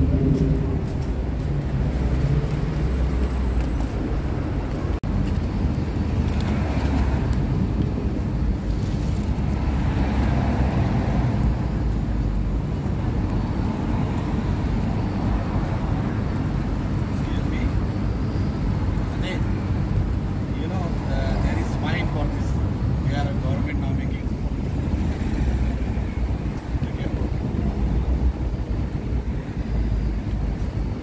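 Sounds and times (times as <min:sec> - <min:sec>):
vehicle passing: 0:00.0 - 0:05.0
traffic rumble: 0:00.0 - 0:31.0.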